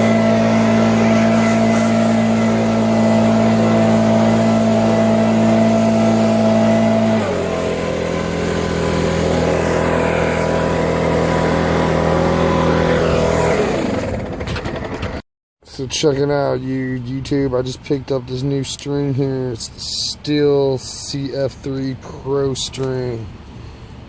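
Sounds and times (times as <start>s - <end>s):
small gasoline engine running: 0.0s - 15.2s.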